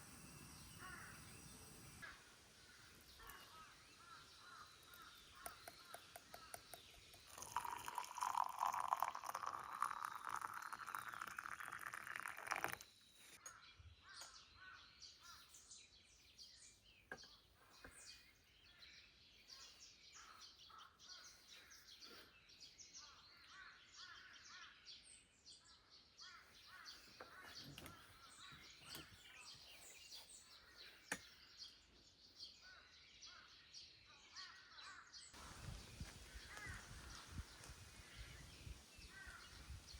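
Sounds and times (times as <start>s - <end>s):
birds: 0.0s - 39.9s
crows cawing: 0.8s - 1.2s
liquid poured into cup: 4.9s - 12.9s.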